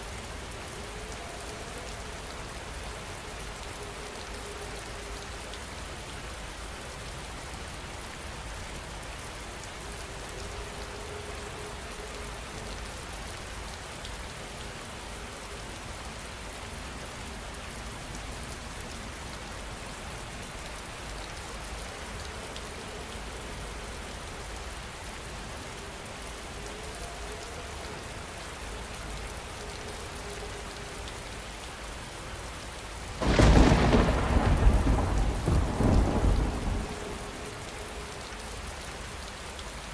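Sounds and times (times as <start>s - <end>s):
heavy rain falling: 0.0s - 39.9s
thunder crack and rumble: 33.2s - 37.8s.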